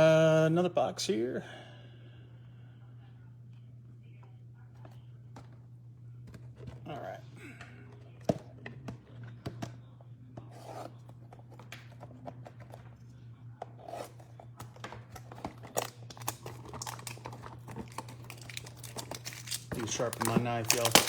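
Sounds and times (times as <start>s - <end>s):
knife scraping plastic and cardboard: 13.8s - 21.0s.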